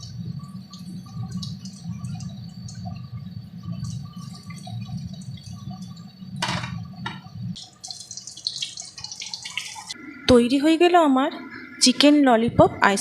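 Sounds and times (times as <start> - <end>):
chicken deep-frying in sizzling oil: 0.0 - 10.0.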